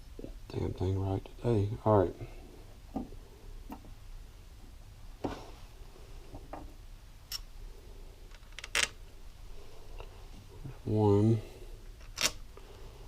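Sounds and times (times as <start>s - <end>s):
metallic clicks of bolts and tools: 7.3s - 7.5s, 12.0s - 12.4s.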